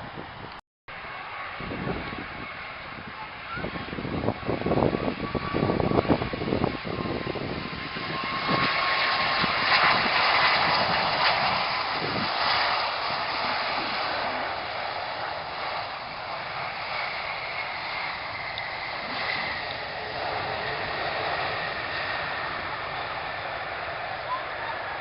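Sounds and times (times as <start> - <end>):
airliner engine rushing: 0.0 - 25.0
wind buffeting microphone: 0.0 - 25.0.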